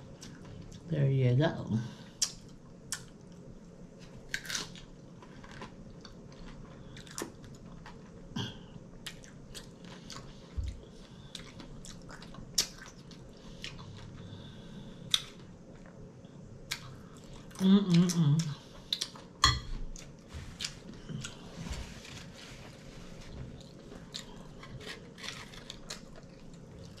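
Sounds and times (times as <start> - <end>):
person crunching chips: 4.2 - 8.0, 23.7 - 27.0.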